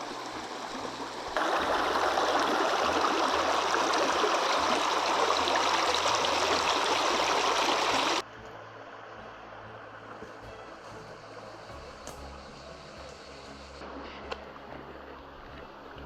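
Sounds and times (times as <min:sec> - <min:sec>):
stream rushing: 0:00.0 - 0:10.4.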